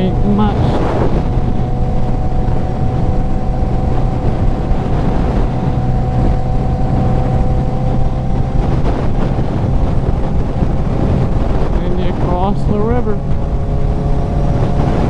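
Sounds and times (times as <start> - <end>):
motorcycle engine cruising: 0.0 - 15.0
wind buffeting microphone: 0.0 - 15.0.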